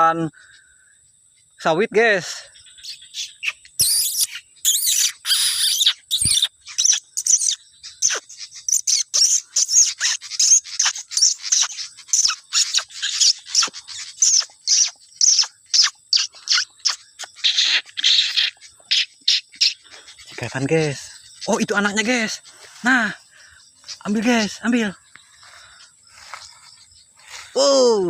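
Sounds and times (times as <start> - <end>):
bird calling in sharp chirps: 0.0 - 28.0
high insect whine: 0.0 - 28.0.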